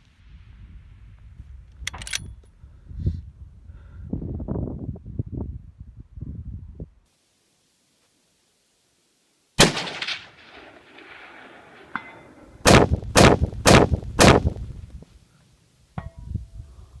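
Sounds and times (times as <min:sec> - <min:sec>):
gunshots: 0:09.6 - 0:14.6.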